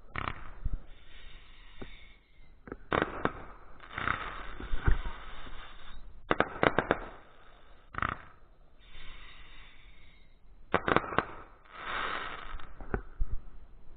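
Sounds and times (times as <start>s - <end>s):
fireworks banging: 0.0s - 8.4s, 10.7s - 13.2s
fireworks hissing and crackling: 0.1s - 13.2s.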